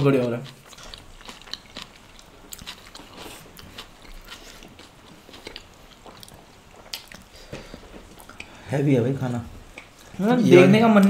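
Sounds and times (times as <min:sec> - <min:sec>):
chewing with lip smacks: 0:00.0 - 0:08.6.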